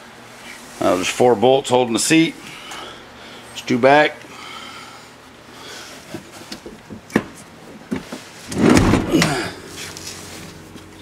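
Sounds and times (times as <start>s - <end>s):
rustling scrape: 9.7s - 10.8s.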